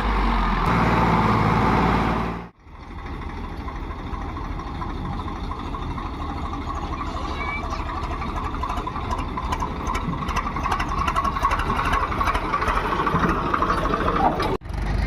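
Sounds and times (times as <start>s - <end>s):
heavy diesel engine running: 0.0s - 15.0s
engine running with fast knock: 7.8s - 15.0s.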